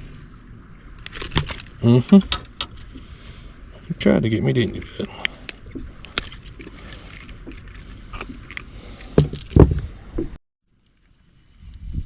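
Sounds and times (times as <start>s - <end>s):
fishing tackle jingling: 4.6s - 9.7s
heavy thumps: 9.2s - 10.4s.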